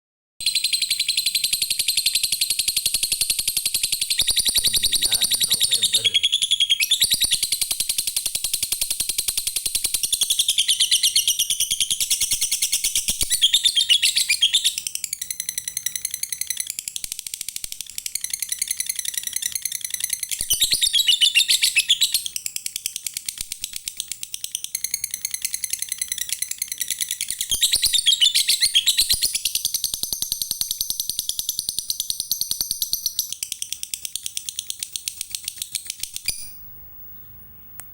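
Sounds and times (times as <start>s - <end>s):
bird chattering trill: 3.9s - 8.0s.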